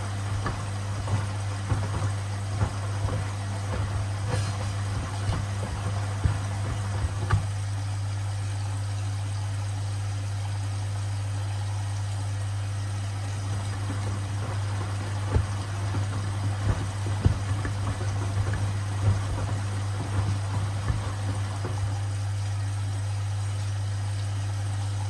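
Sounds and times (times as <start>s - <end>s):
sneakers thudding in drum: 0.0s - 7.6s, 13.4s - 22.2s
washing machine motor hum: 0.0s - 25.0s.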